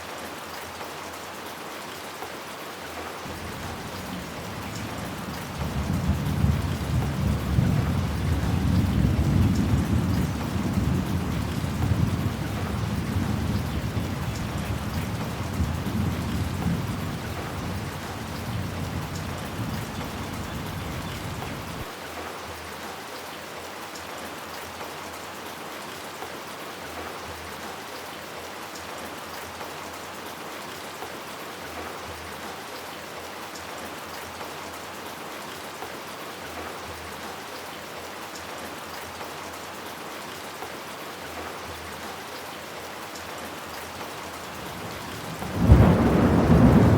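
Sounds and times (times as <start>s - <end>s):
heavy rain: 0.0s - 46.9s
thunder rumble: 44.6s - 46.9s.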